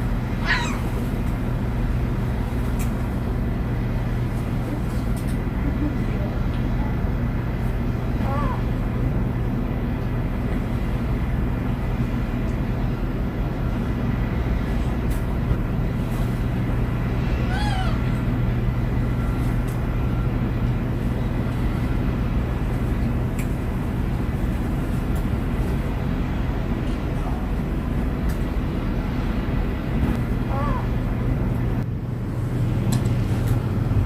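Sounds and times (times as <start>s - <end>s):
steady low drone: 0.0s - 34.0s
gull calling: 0.3s - 1.0s, 8.2s - 8.8s, 17.4s - 18.3s, 30.4s - 31.0s.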